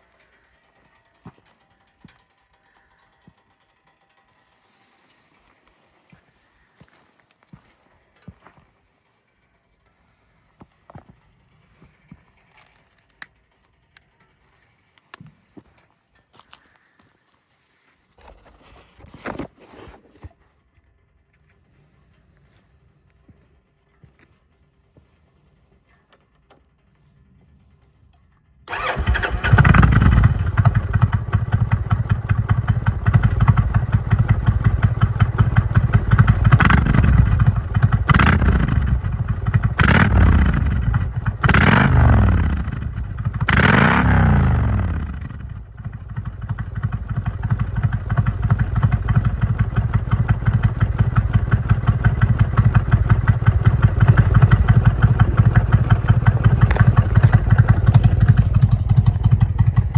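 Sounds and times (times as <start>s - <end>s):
motorcycle engine idling: 0.0s - 14.6s, 23.1s - 59.9s
motorcycle engine starting: 26.3s - 59.9s
motorcycle engine revving: 28.7s - 59.9s.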